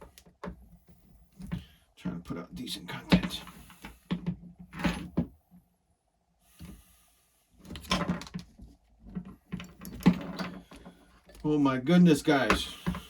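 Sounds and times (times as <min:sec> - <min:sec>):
plastic parts clattering and clicking: 0:07.7 - 0:11.5.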